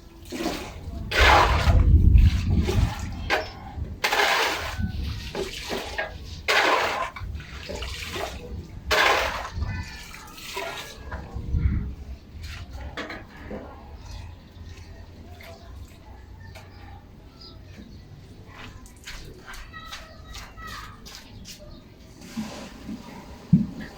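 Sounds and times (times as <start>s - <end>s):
clatter and rustle: 12.4s - 15.8s.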